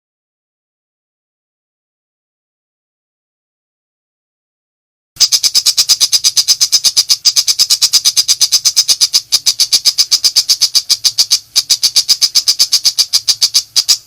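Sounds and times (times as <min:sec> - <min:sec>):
bird rattling call: 0:05.2 - 0:14.0.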